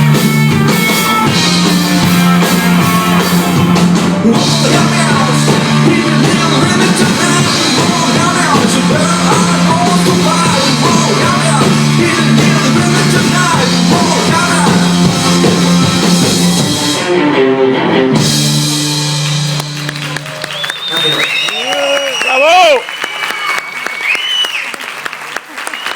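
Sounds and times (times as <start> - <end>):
drum kit: 0.0 - 17.3, 18.1 - 21.2
rock band playing live: 0.0 - 22.7.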